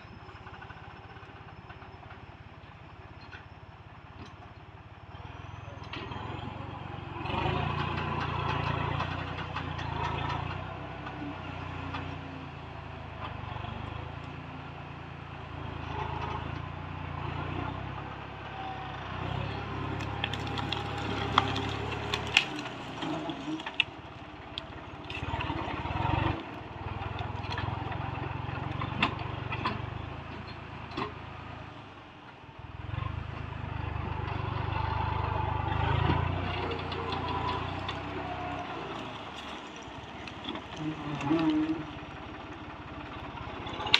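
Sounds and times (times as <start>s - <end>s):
tractor engine droning: 0.0s - 43.9s
sharp cracks and knocks: 19.9s - 25.6s.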